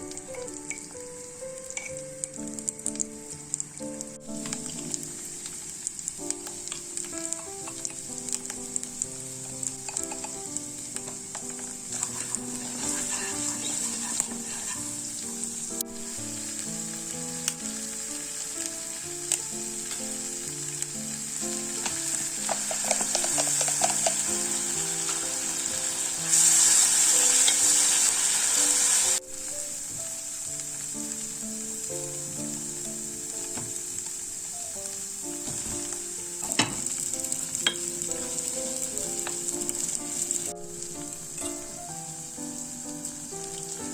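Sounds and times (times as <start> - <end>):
food sizzling in a pan: 0.0 - 43.9
soft background music: 0.0 - 43.9
utensil stirring and clicking: 9.4 - 15.4, 21.8 - 27.9.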